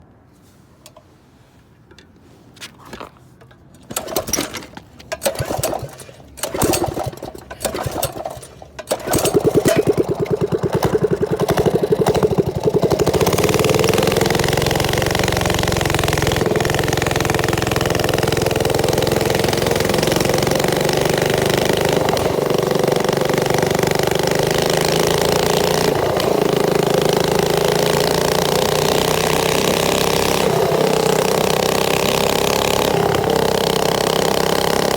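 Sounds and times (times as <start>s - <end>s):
small engine chugging idle: 3.9s - 34.9s.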